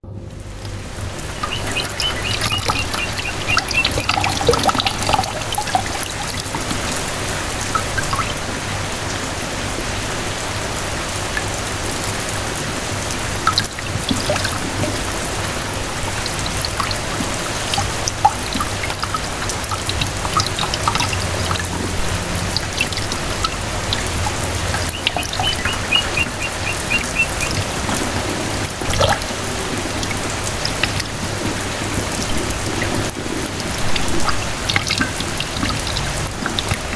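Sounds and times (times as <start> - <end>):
rain pattering: 0.0 - 36.9
water trickling and pouring: 0.4 - 36.9
bird calling high notes: 1.3 - 5.6, 23.4 - 27.9.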